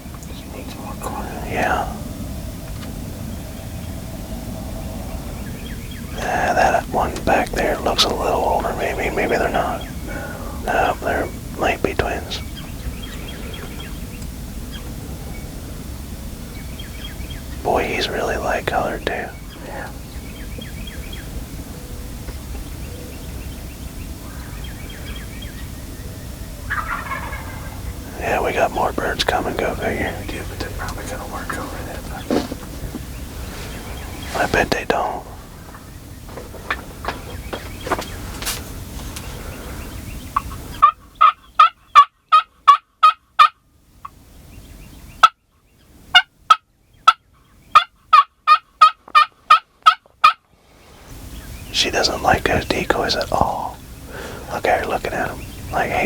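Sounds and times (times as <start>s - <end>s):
wild turkeys calling: 0.0s - 45.4s, 46.1s - 56.0s
turkey yelping: 26.6s - 28.2s, 39.2s - 43.6s, 46.1s - 50.4s.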